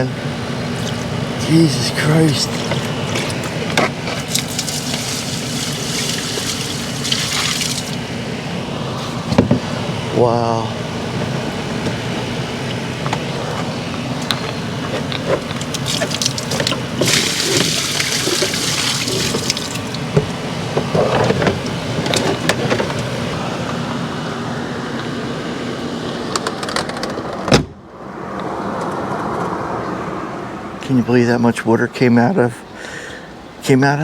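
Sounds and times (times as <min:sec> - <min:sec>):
water poured out splashing: 0:04.2 - 0:08.0, 0:15.8 - 0:20.0.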